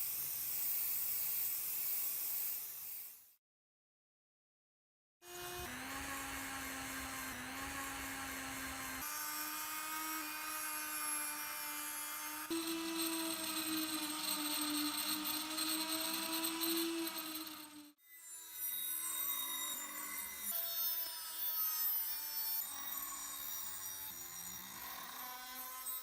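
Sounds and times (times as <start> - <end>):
electric power tool motor hum: 5.3 - 17.9.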